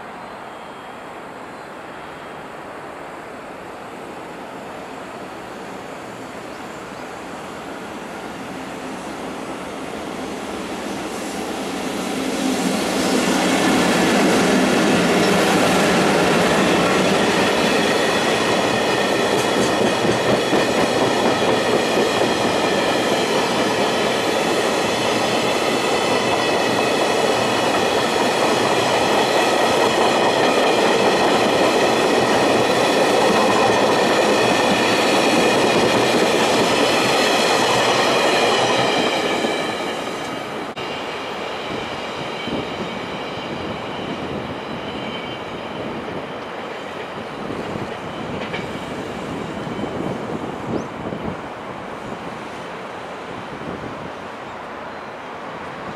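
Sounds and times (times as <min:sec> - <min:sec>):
freight train rumbling past: 0:04.2 - 0:55.9
high ringing from train wheels: 0:07.6 - 0:51.2.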